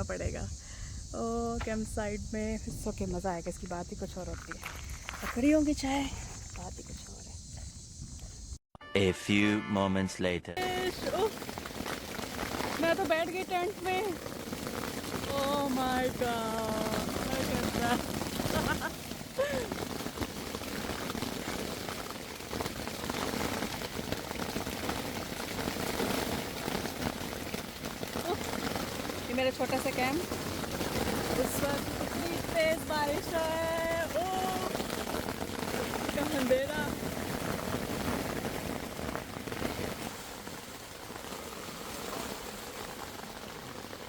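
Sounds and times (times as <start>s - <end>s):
rain drumming on a tent: 10.6s - 44.0s.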